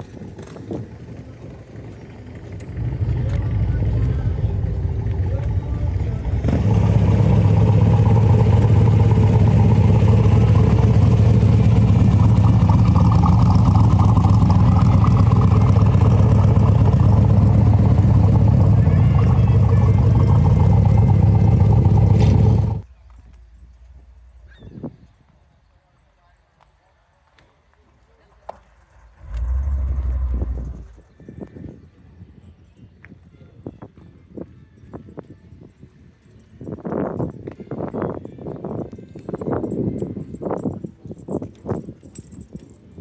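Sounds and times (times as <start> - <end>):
car engine running: 1.9 - 22.8, 28.8 - 31.0.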